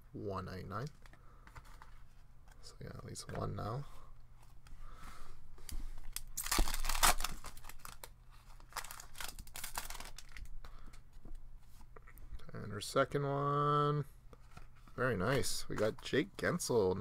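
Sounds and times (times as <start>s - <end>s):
cards rustling: 5.6s - 12.2s
foil wrapper crinkling and tearing: 6.1s - 10.5s.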